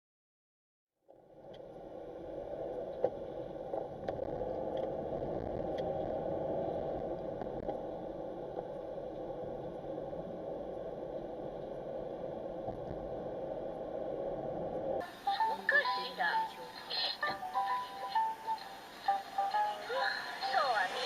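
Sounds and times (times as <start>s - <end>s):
car road and engine hum: 1.1s - 16.8s.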